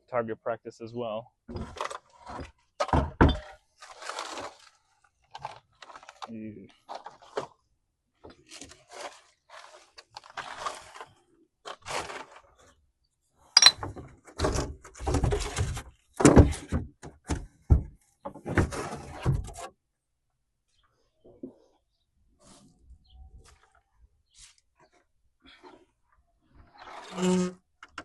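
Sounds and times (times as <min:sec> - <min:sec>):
objects scraping: 0:01.5 - 0:07.6, 0:08.3 - 0:12.8.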